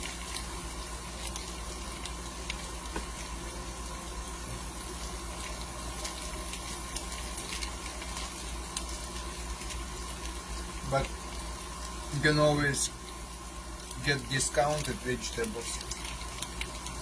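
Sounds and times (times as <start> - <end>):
potatoes sizzling in a pan: 0.0 - 17.0
small pops and crackles: 0.0 - 17.0.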